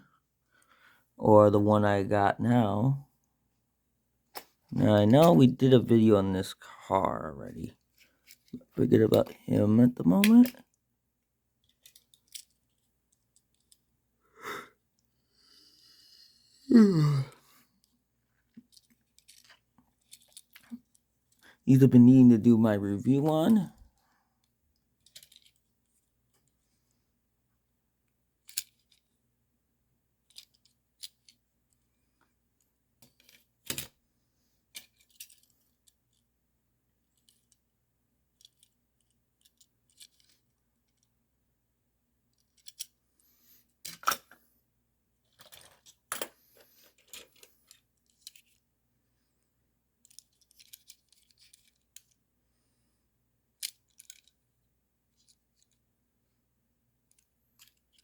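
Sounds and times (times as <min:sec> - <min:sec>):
small objects clicking and tapping: 0:18.4 - 0:21.4, 0:25.0 - 0:25.6, 0:50.0 - 0:52.2, 0:53.6 - 0:54.4, 0:57.0 - 0:58.0.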